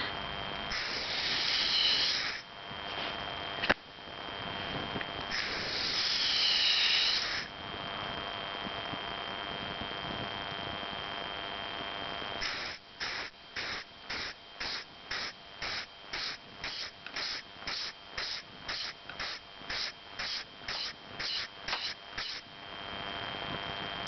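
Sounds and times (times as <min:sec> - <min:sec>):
rhythmic steam puffs: 0:00.7 - 0:02.4
steam hissing: 0:00.7 - 0:02.4, 0:05.3 - 0:07.5, 0:12.4 - 0:22.4.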